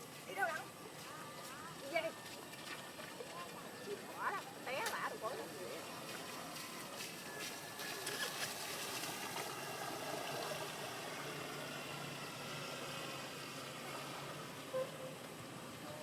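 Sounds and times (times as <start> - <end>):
water wash: 0.0 - 16.0
model boat motors whining: 3.7 - 16.0.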